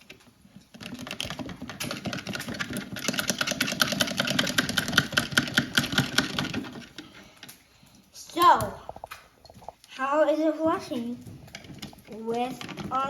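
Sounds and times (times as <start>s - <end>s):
fast mechanical clicking: 0.8s - 7.6s.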